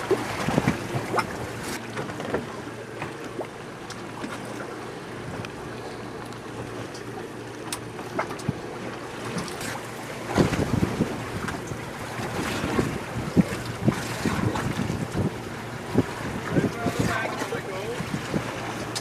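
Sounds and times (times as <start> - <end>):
water splashing along hull: 0.0 - 19.0
wind buffeting microphone: 10.2 - 19.0.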